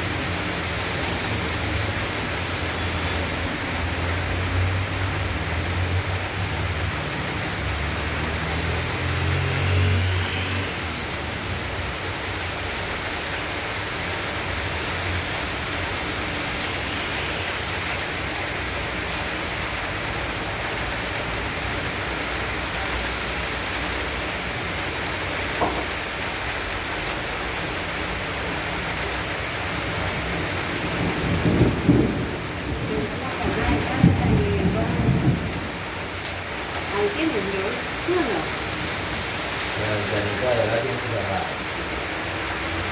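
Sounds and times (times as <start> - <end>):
heavy rain hiss: 0.0 - 42.9
low thunder rumble: 30.9 - 36.2.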